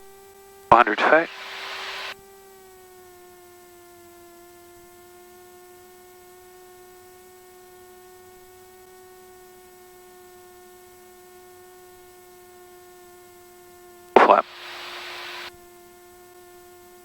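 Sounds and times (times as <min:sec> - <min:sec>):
electrical hum in intercom: 0:00.7 - 0:02.2, 0:14.2 - 0:15.5.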